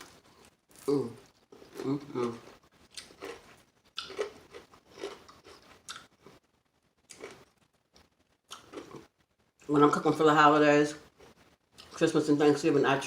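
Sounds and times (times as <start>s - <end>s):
crunchy chewing: 0.0s - 6.4s, 7.0s - 9.1s.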